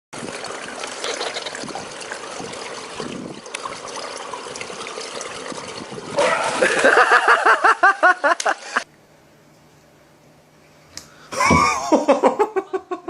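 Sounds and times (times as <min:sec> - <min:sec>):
water trickling and splashing: 0:00.2 - 0:08.8.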